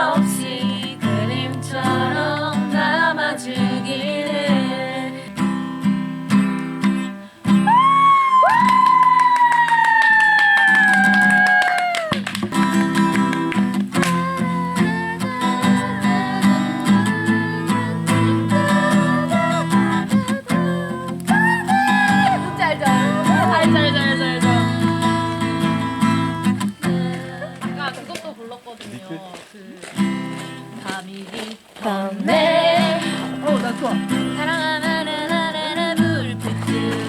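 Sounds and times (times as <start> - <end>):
person singing: 0.0 - 5.4, 14.0 - 27.8, 31.8 - 37.0
acoustic guitar strumming: 0.0 - 9.6, 12.2 - 28.4, 29.9 - 31.0, 31.8 - 37.0.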